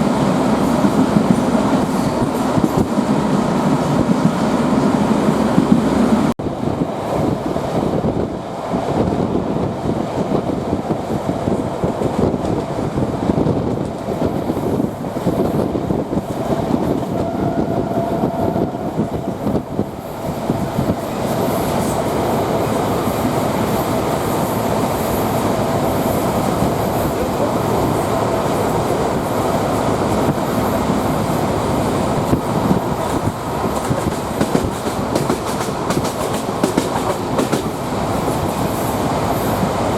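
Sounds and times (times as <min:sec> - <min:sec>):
train rolling noise: 0:00.0 - 0:39.9
wheels clacking over rail joints: 0:32.2 - 0:38.6.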